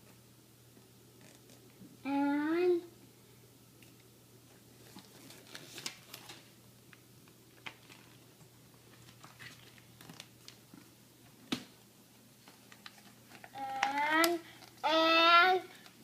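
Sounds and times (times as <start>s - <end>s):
stickers and paper rustling: 4.8s - 6.5s, 7.6s - 10.9s, 12.4s - 15.0s.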